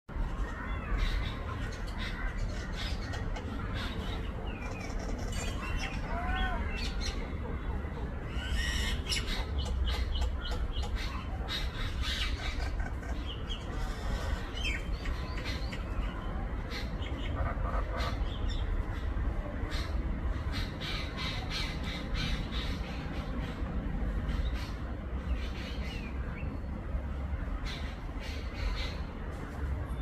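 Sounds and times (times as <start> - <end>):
sharp clicky bird calls: 8.4 - 15.9.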